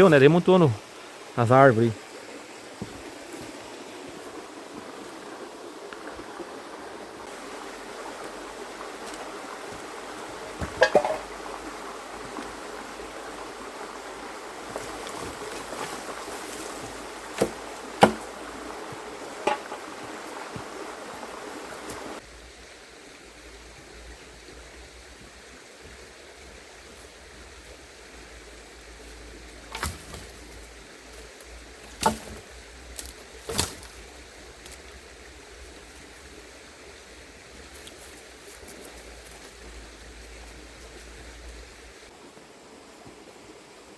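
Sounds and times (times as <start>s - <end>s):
river stream running: 0.0s - 43.9s
dry wood knocking and snapping: 17.3s - 18.4s, 29.7s - 30.4s, 31.8s - 34.0s.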